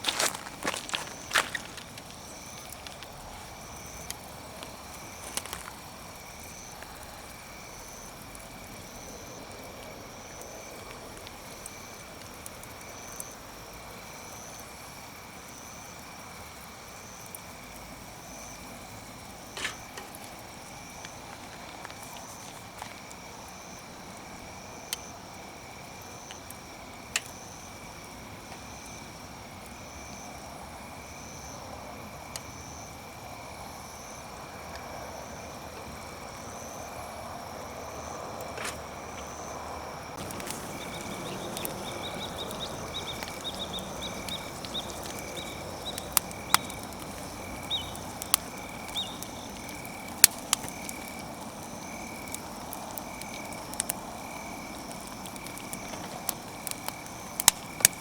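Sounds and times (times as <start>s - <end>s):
campfire crackling: 0.0s - 58.0s
hiss: 40.2s - 58.0s
sharp fire pops: 40.2s - 58.0s.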